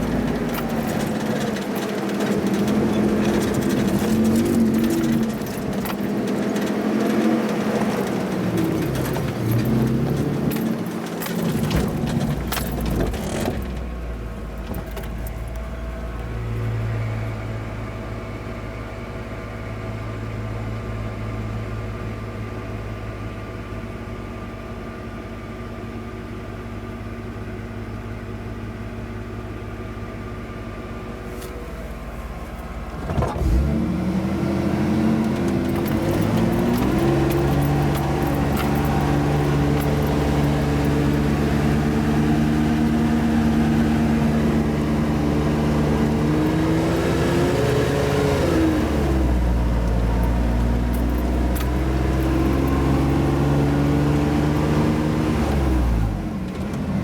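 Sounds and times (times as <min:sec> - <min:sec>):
rattles and knocks: 0:00.0 - 0:15.8, 0:35.1 - 0:43.2
vehicle engine running: 0:00.0 - 0:57.0.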